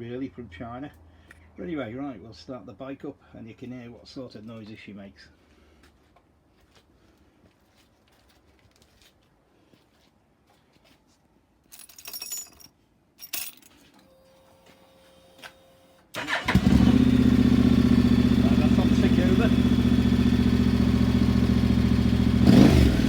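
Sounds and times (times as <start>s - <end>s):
keys jangling: 11.7s - 13.9s
motorcycle starter cranking: 16.2s - 19.6s
motorcycle engine idling: 16.2s - 23.0s.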